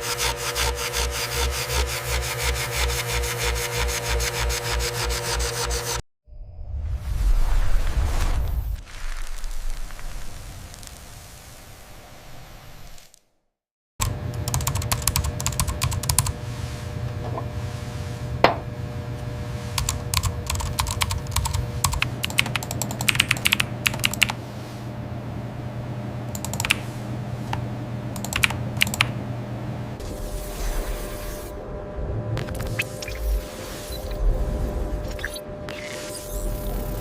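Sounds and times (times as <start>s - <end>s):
steady low hum: 14.0s - 35.7s.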